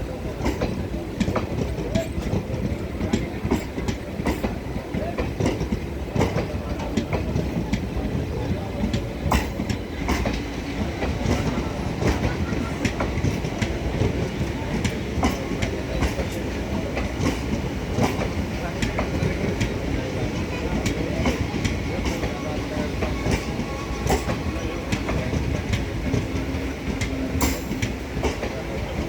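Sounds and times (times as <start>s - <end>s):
train rumbling on track: 0.0s - 29.0s.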